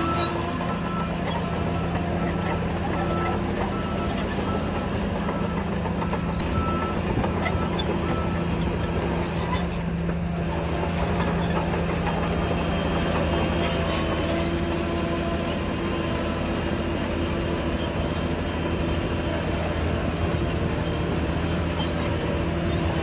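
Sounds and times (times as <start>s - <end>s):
diesel machine engine drone: 0.0s - 23.0s.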